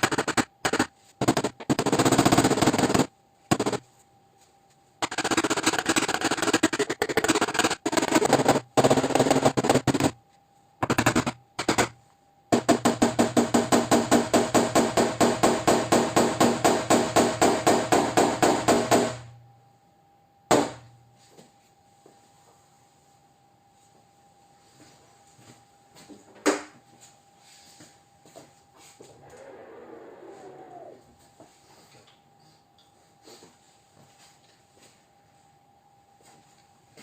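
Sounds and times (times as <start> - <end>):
rapid hammering on sheet metal: 0.0 - 3.8, 5.0 - 10.2, 10.8 - 19.3.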